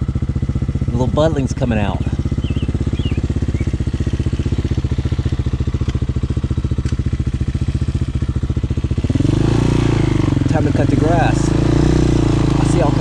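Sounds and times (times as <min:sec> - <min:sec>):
motorcycle engine idling: 0:00.0 - 0:13.0
faint high chirps: 0:02.2 - 0:03.8.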